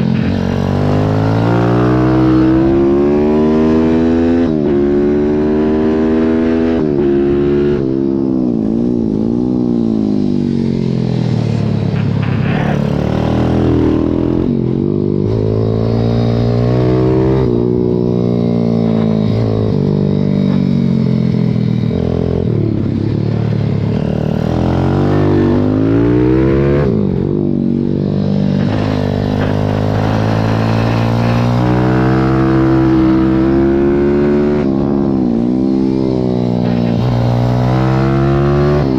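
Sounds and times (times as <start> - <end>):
motorbike engine revving: 0.0 - 38.9.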